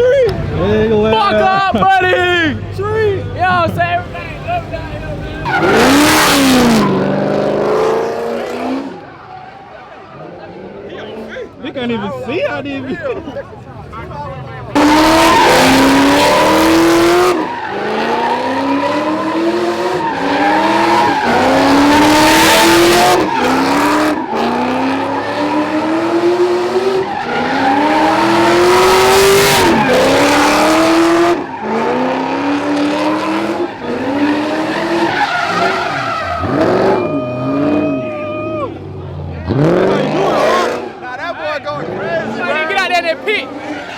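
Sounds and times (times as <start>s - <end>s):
spinning tyres squealing: 3.7s - 11.6s, 12.2s - 43.9s
car engine revving hard: 4.1s - 9.1s, 13.9s - 38.0s, 38.7s - 41.0s.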